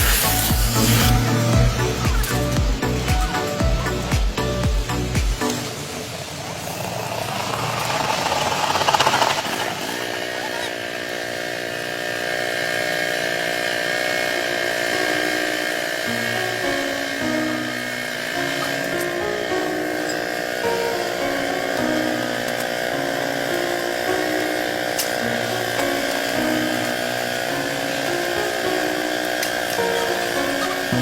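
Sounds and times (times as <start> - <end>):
background music sustained notes: 0.0 - 6.8, 13.8 - 31.0
noisy hiss: 0.0 - 10.3.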